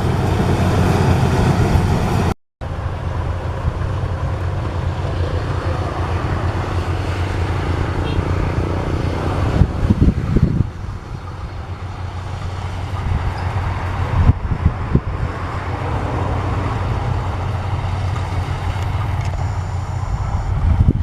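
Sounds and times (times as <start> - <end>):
combine harvester engine hum: 0.0 - 21.0.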